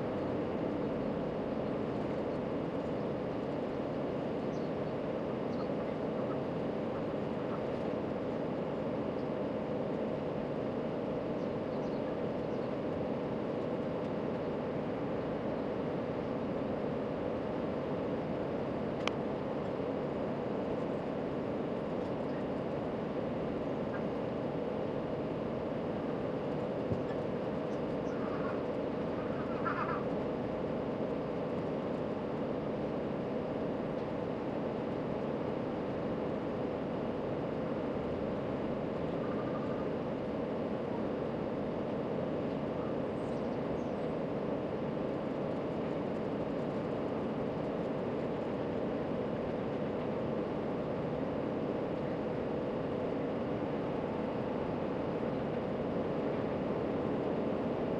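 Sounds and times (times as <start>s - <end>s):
faint steady tone: 0.0s - 57.9s
low background hum: 0.0s - 57.9s
faint chirping: 4.4s - 7.6s, 11.3s - 12.9s, 42.8s - 44.2s.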